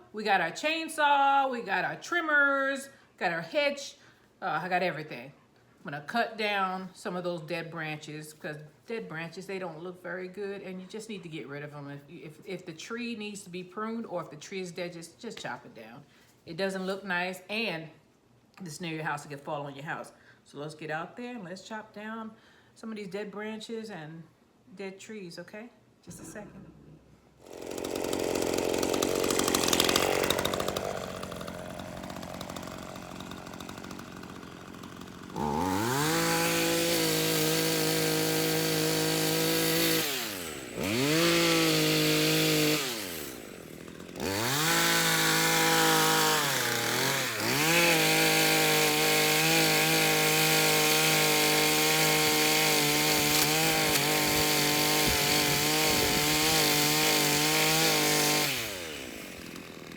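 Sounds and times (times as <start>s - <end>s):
background noise: 0.0s - 27.5s
chainsaw running: 27.4s - 59.9s.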